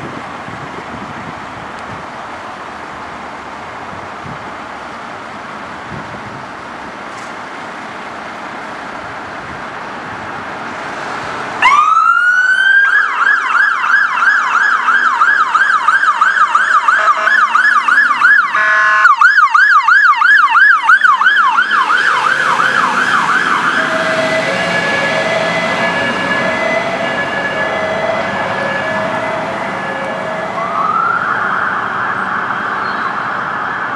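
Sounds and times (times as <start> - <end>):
traffic noise: 0.0 - 33.9
fire engine siren: 10.8 - 33.9
horn blast: 15.2 - 19.3, 21.6 - 30.8.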